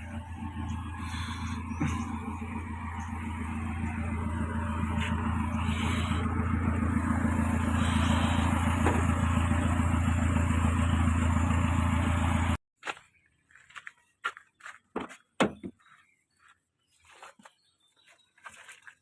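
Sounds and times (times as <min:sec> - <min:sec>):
car engine running: 0:00.0 - 0:12.6.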